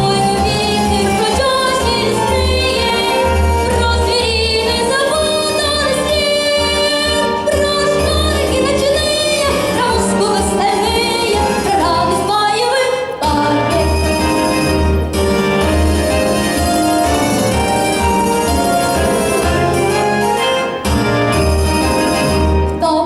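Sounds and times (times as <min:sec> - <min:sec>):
instrumental music with pulsing bass: 0:00.0 - 0:12.3, 0:13.2 - 0:23.0
child singing with vibrato: 0:00.0 - 0:14.2.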